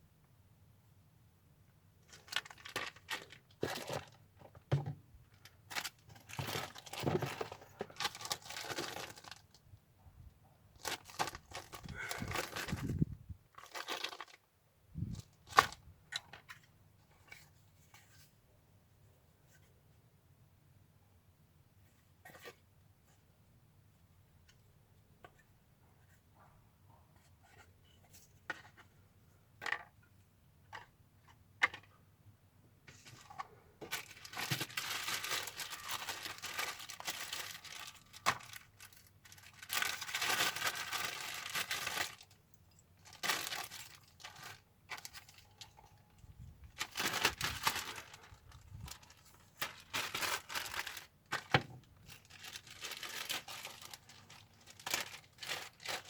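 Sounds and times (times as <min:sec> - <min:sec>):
material tearing and crinkling: 0:33.9 - 0:42.2, 0:46.8 - 0:51.6, 0:52.2 - 0:56.0.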